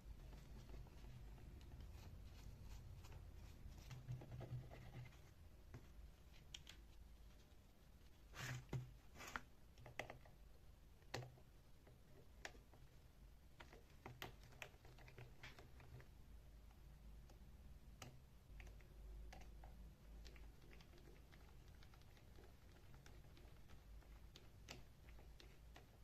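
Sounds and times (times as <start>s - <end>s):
light clicks and taps: 3.8s - 7.0s, 18.0s - 26.0s.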